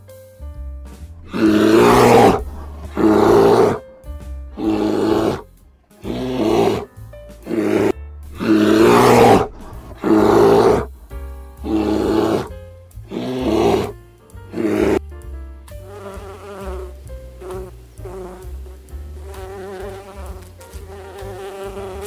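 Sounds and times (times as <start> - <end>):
background music: 0.0 - 22.0
bear growling: 1.2 - 3.8, 4.6 - 6.9, 7.5 - 12.5, 13.1 - 15.0.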